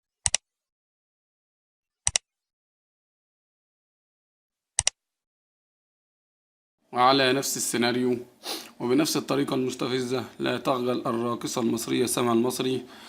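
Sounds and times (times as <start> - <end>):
sharp double clicks: 4.8 - 5.0.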